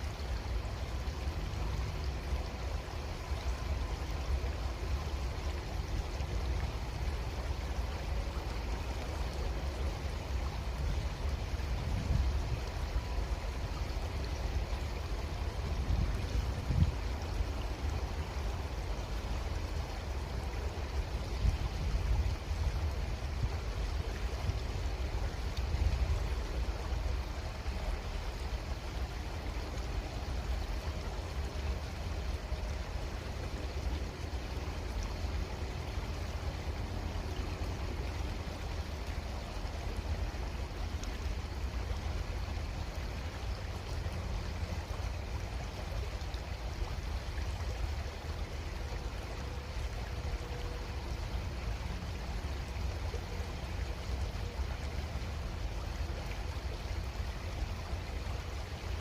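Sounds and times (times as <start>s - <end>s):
creek water flowing: 0.0s - 59.0s.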